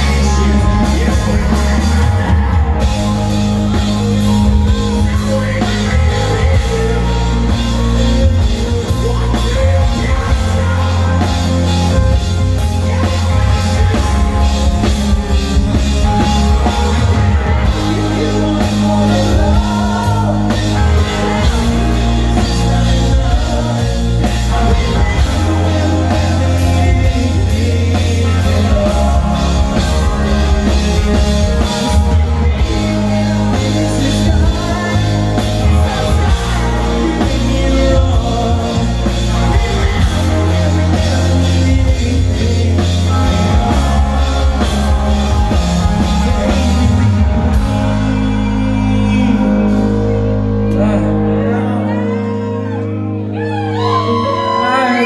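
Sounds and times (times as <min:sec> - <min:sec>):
drum kit: 0:00.0 - 0:50.9
bass guitar: 0:00.0 - 0:55.0
electric guitars: 0:00.0 - 0:55.0
person singing or shouting: 0:00.0 - 0:55.0.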